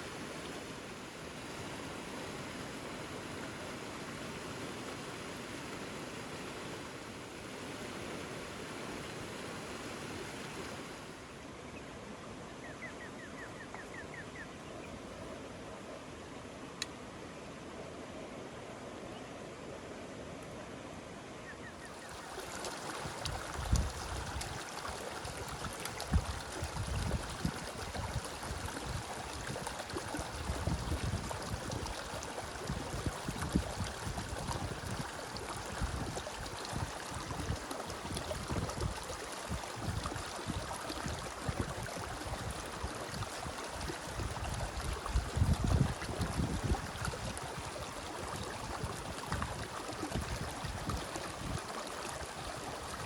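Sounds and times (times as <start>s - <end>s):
steady rain hiss: 0.0s - 12.6s.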